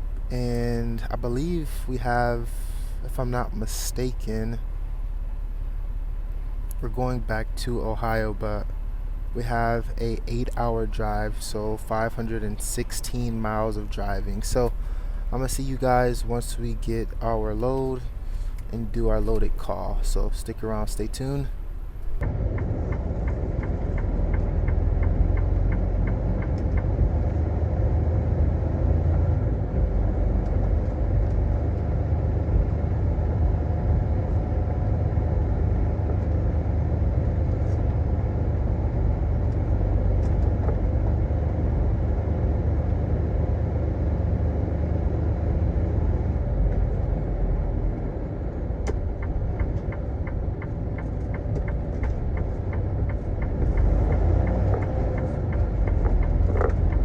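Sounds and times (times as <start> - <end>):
truck diesel engine running: 0.0 - 57.0
faint clicks: 48.8 - 57.0.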